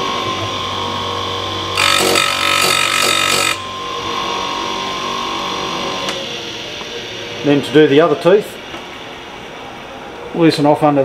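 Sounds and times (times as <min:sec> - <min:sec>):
grinder motor humming: 0:00.0 - 0:07.0
grinding wheel on metal: 0:01.8 - 0:03.7.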